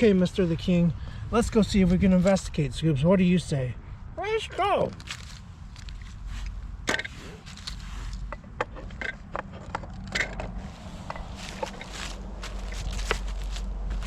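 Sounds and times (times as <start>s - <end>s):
low steady rumble: 0.0s - 14.0s
footsteps crunching dry leaves: 5.0s - 6.5s, 10.6s - 14.0s.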